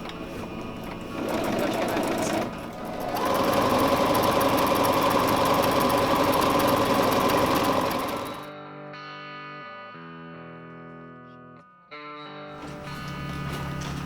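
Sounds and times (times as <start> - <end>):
sewing machine stitching: 0.0 - 8.5.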